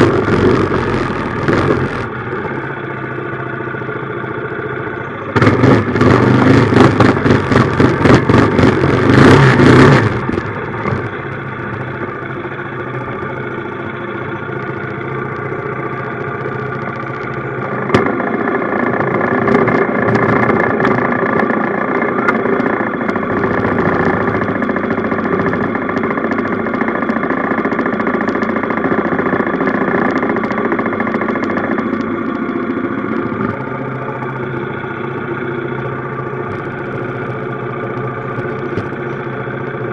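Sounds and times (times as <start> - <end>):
small engine revving: 0.0 - 2.2, 5.4 - 11.4, 19.4 - 25.8.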